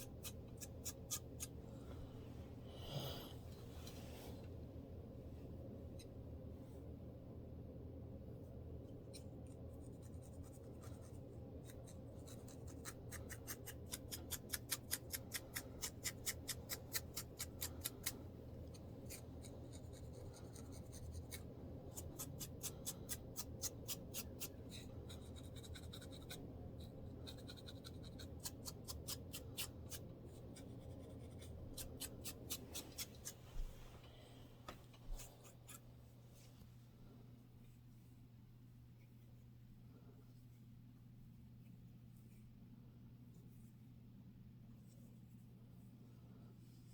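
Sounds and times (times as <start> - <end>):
fingers scratching scalp: 0.0 - 1.6, 9.8 - 33.4.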